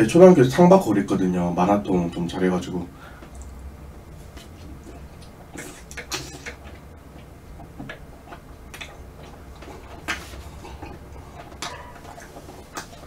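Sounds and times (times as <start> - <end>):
chewing and wet mouth smacks: 3.2 - 3.6, 4.4 - 13.0.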